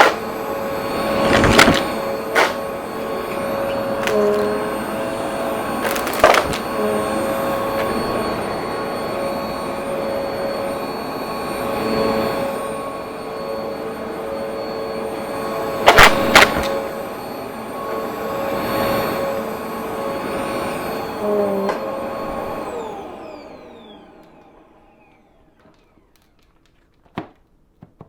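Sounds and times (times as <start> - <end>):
debris crackling in vacuum: 0.0 - 4.8, 5.6 - 6.8
vacuum cleaner motor whine: 0.0 - 27.3.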